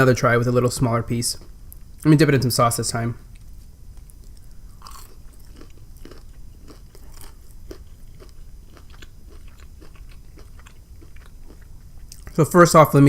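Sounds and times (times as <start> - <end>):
crunching and chewing fried shrimp: 3.3 - 12.6.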